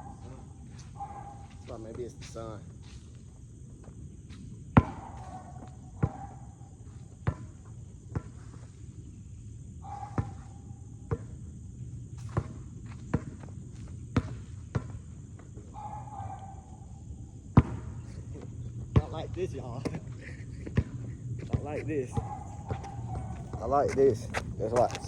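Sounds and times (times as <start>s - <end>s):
insects droning: 0.0s - 25.0s
basketball bouncing on hard ground: 4.7s - 8.5s, 9.9s - 11.4s, 12.2s - 16.8s, 17.5s - 25.0s.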